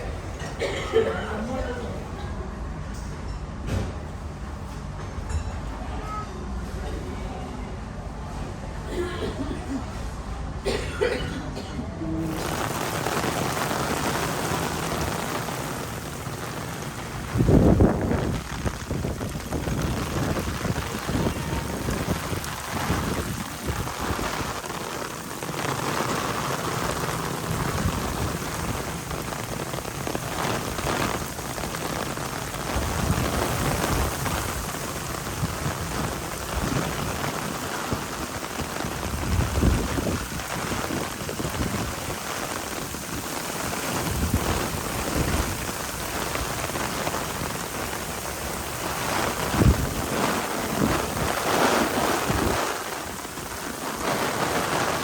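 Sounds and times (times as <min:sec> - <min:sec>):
heavy rain pouring: 0:12.0 - 0:55.0
rumbling wind gusts: 0:12.2 - 0:55.0.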